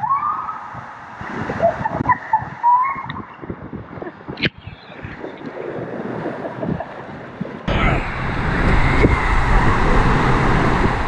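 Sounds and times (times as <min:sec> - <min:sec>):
wind buffeting microphone: 0:00.0 - 0:11.0
rushing water: 0:07.6 - 0:11.0.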